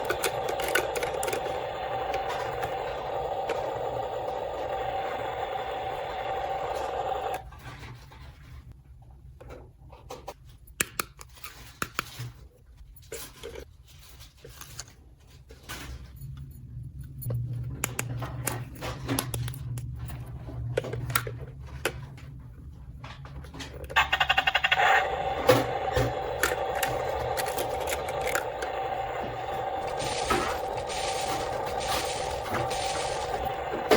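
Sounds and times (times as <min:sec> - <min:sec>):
steady sound: 0:00.0 - 0:07.4, 0:24.0 - 0:33.9.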